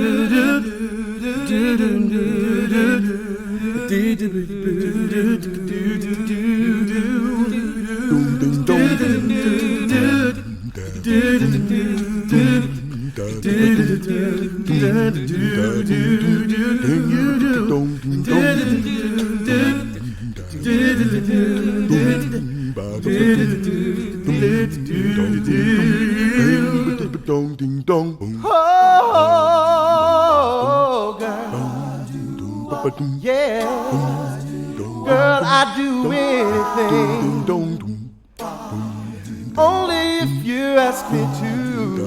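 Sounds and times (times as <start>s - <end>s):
a cappella group singing: 0.0s - 42.0s.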